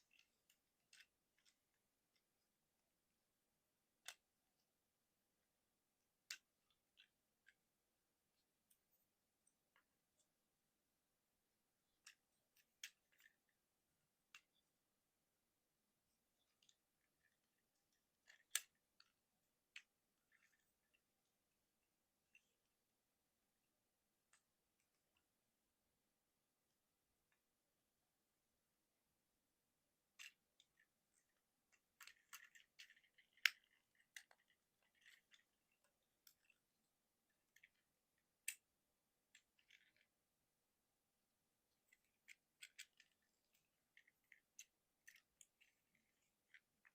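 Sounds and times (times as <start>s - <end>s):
plastic toy parts clicking: 0.0s - 2.4s, 3.9s - 4.6s, 11.9s - 13.6s, 16.3s - 21.1s, 30.1s - 40.2s, 41.7s - 46.9s.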